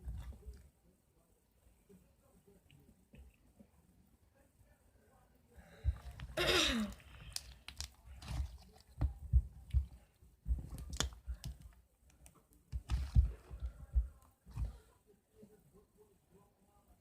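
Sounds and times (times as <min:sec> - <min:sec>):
hands squishing slime: 0:07.0 - 0:14.8.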